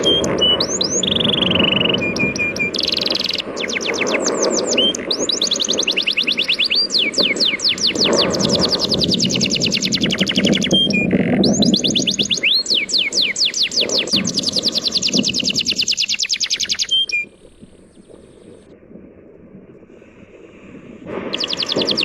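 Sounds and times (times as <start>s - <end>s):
songbird trilling: 0.0s - 18.6s, 21.3s - 22.0s
sea waves washing: 19.8s - 22.0s.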